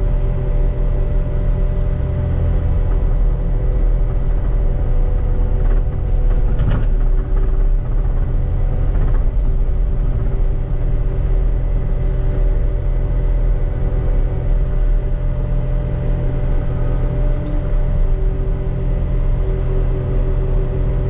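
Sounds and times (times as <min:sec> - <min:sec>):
short clatter: 0:05.7 - 0:08.1.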